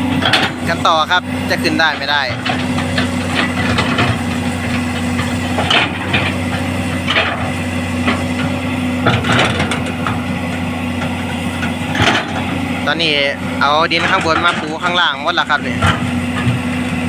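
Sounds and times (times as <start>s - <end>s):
excavator diesel engine running: 0.0s - 17.0s
sharp metallic clanks: 0.1s - 12.6s.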